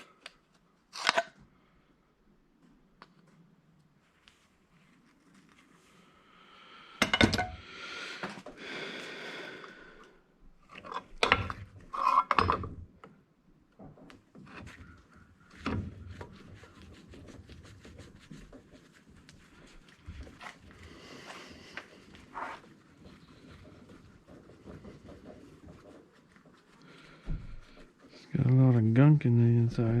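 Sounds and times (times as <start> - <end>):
metal parts clanking on workbench: 10.8 - 12.8.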